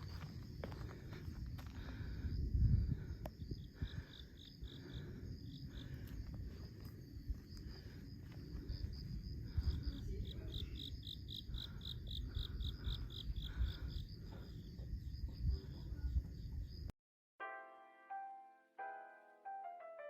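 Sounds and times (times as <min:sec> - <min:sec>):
insect chirps: 0:00.0 - 0:16.9.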